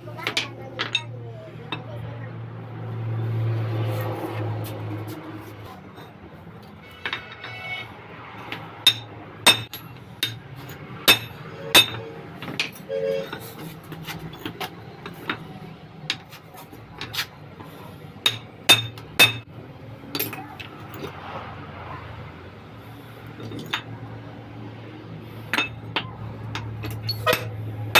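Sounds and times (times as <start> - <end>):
hammer striking metal: 6.9 - 12.8, 18.2 - 19.5, 25.5 - 27.6.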